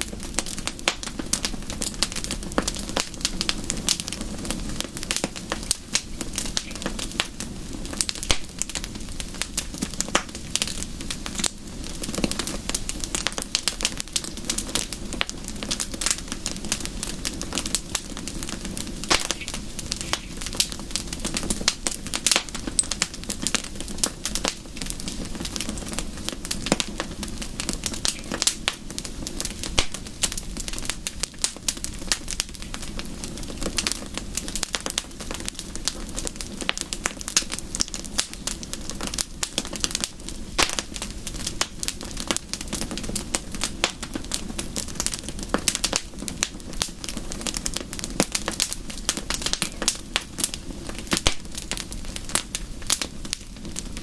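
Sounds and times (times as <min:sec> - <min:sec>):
wood fire crackling: 0:00.0 - 0:54.0
sharp pops: 0:19.1 - 0:20.4.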